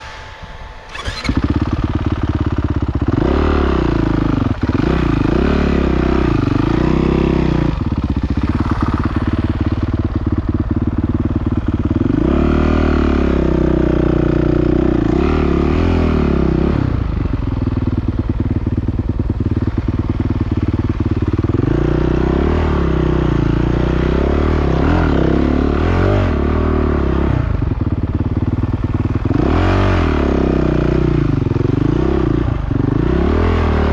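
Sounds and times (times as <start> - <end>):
motocross engine revving: 0.9 - 2.2, 3.1 - 10.9, 11.9 - 17.4, 21.4 - 27.6, 29.2 - 33.9.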